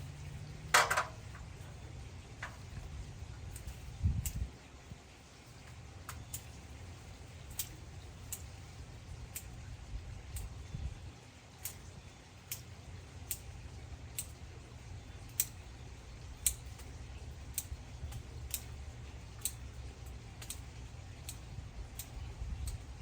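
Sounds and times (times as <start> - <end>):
low steady rumble: 0.0 - 23.0
pruning shears snipping: 3.4 - 4.5, 7.4 - 8.5, 16.4 - 22.8.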